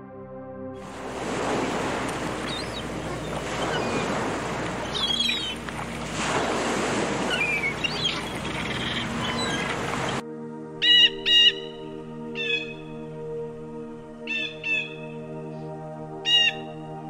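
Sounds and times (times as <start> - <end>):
surf washing onto beach: 0.8 - 10.2
wind noise: 0.8 - 10.2
faint high bird calls: 1.5 - 5.9, 7.2 - 10.2, 16.3 - 16.6.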